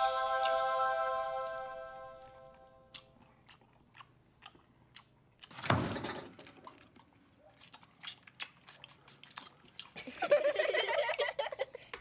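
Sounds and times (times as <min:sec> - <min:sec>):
chewing noodles: 0:02.9 - 0:05.6, 0:06.4 - 0:10.2
wet mouth clicks: 0:02.9 - 0:05.6, 0:07.6 - 0:10.1.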